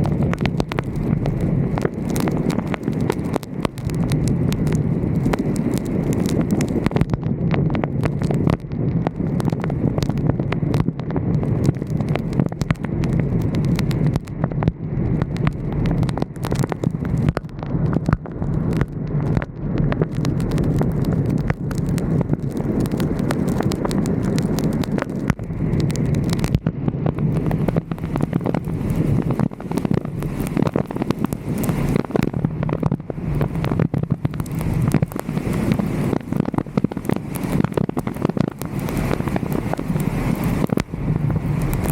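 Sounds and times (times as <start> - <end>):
irregular clicks and pops: 0.0 - 41.9
wind and road rumble: 0.0 - 41.9.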